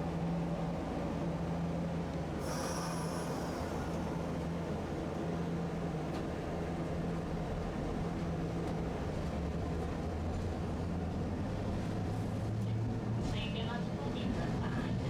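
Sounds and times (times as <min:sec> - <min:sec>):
streetcar rumbling: 0:00.0 - 0:15.0.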